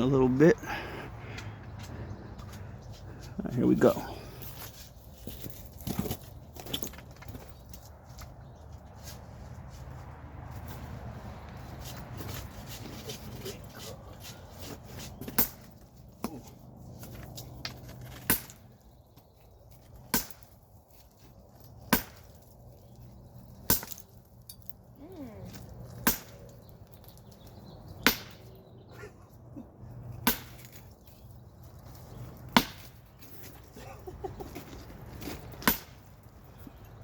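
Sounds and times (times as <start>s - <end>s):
sledgehammer striking wood: 18.0s - 18.6s, 20.0s - 20.5s, 21.9s - 22.4s, 26.0s - 26.4s, 28.0s - 28.5s, 30.2s - 30.8s, 32.5s - 33.0s, 35.6s - 36.0s.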